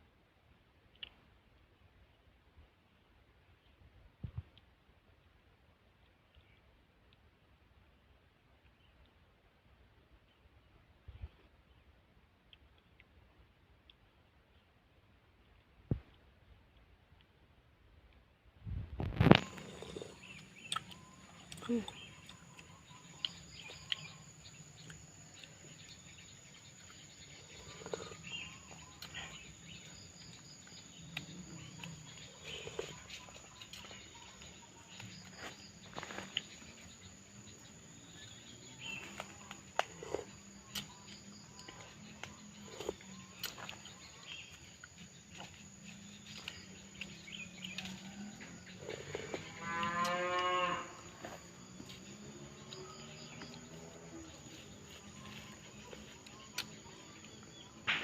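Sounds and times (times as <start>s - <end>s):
chewing and slurping: 19.0s - 50.2s.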